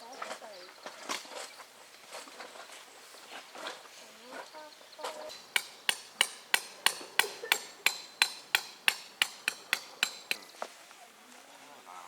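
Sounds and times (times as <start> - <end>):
ringing hammer blows: 5.3 - 10.5.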